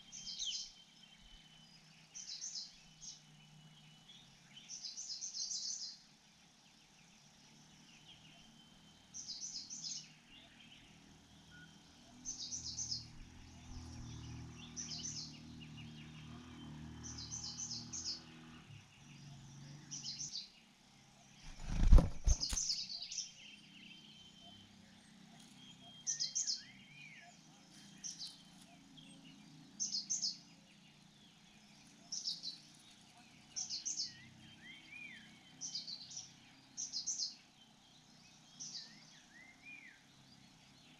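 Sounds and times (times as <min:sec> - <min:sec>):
small bird chirping: 0:00.0 - 0:40.9
brief rustle: 0:21.4 - 0:22.8.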